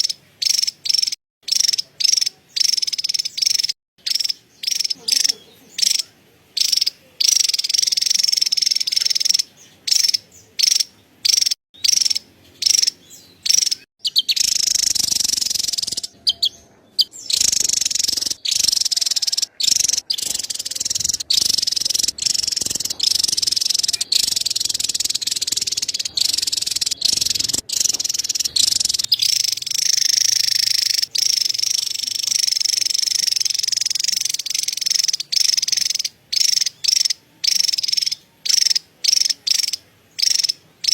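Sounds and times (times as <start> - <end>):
bird chattering call: 0.0 - 40.9.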